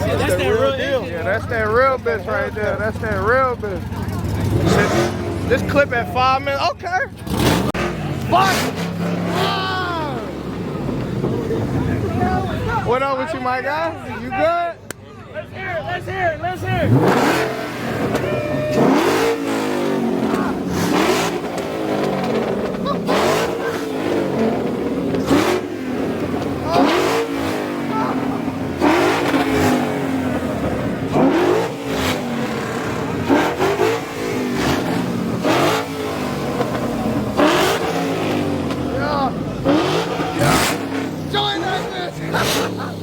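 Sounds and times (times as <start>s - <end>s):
car engine revving: 0.0s - 13.6s, 16.5s - 43.0s
sharp exhaust cracks: 16.6s - 43.0s.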